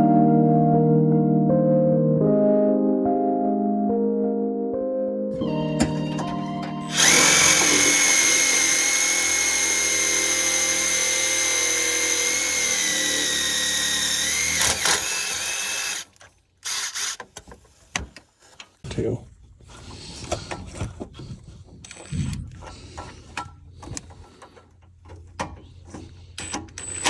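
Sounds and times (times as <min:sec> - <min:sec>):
power drill whining: 0:05.4 - 0:17.4, 0:26.2 - 0:27.0.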